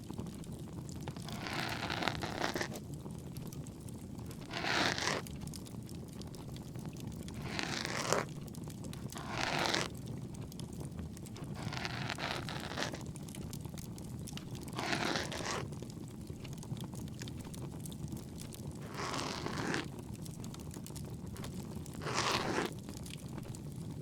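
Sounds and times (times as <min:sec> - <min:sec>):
ear pick scraping in ear: 0:01.2 - 0:02.8, 0:04.3 - 0:05.2, 0:07.4 - 0:08.3, 0:09.2 - 0:09.9, 0:11.4 - 0:13.0, 0:14.7 - 0:15.7, 0:18.8 - 0:19.9, 0:21.4 - 0:22.7.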